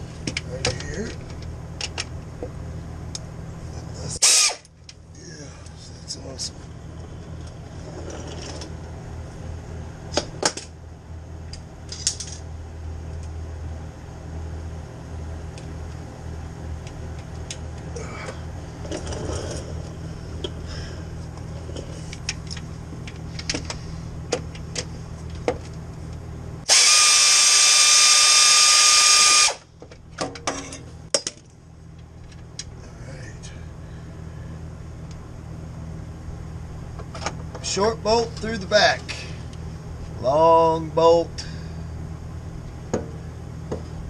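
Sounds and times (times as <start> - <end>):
steady low hum: 0.0 - 44.0
pneumatic air ratchet whine: 4.2 - 4.7, 26.6 - 29.7.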